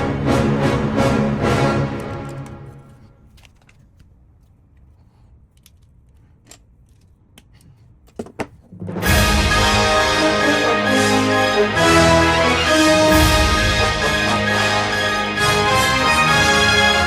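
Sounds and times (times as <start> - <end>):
background music: 0.0 - 3.0, 8.6 - 17.0.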